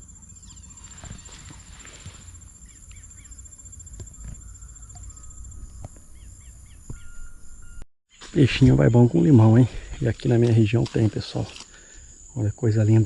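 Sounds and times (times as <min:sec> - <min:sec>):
small birds chirping: 0:00.0 - 0:12.4
cricket trilling: 0:00.0 - 0:13.0.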